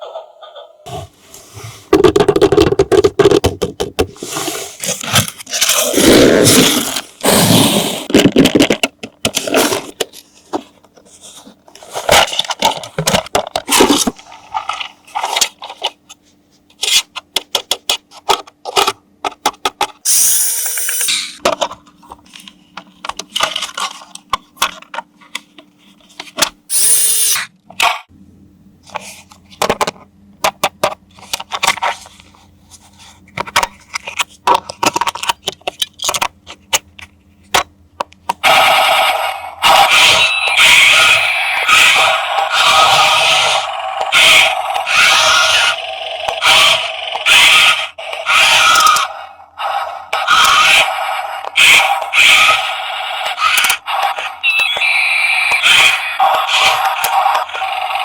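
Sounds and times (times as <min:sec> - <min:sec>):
plastic toy clicks and scrapes: 0:39.7 - 0:49.2, 0:49.8 - 0:58.0.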